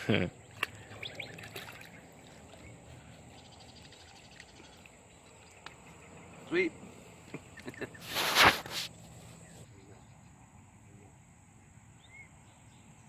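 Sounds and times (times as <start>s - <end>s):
brief rush of noise: 8.0s - 8.9s.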